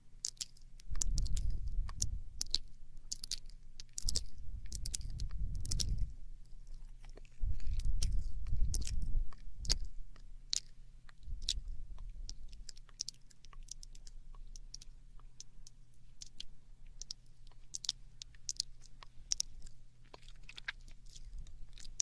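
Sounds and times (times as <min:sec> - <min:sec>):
tongue clicks and lip smacks: 0:00.2 - 0:22.0
low rumble: 0:00.8 - 0:03.2, 0:03.8 - 0:12.8.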